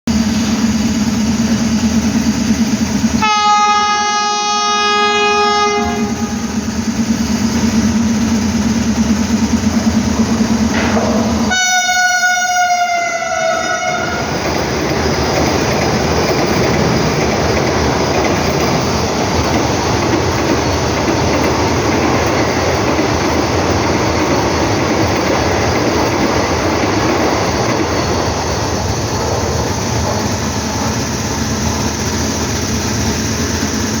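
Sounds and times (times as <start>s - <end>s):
train rumbling and clattering: 0.1s - 34.0s
train horn: 3.2s - 6.6s, 11.5s - 14.4s.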